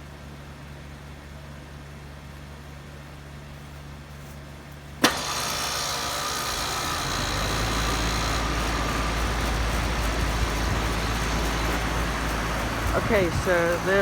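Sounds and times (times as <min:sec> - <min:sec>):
heat pump running: 0:04.1 - 0:14.0.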